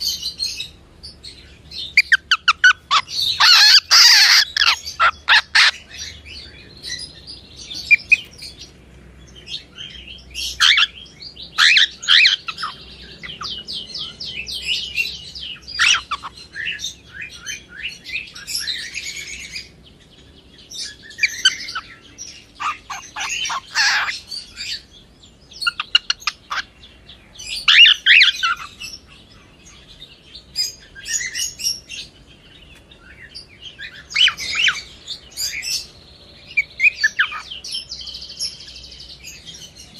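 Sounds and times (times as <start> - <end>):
cockatiel chirping: 2.0 - 5.8, 15.7 - 17.6, 22.6 - 24.8, 27.6 - 28.8, 36.6 - 37.5.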